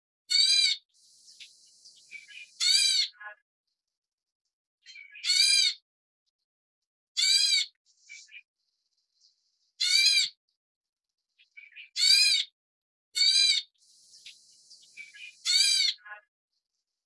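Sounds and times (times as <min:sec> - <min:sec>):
fledglings rasping begging calls: 0:00.3 - 0:03.4, 0:04.9 - 0:05.8, 0:07.2 - 0:08.5, 0:09.2 - 0:10.4, 0:11.4 - 0:12.6, 0:13.2 - 0:16.2.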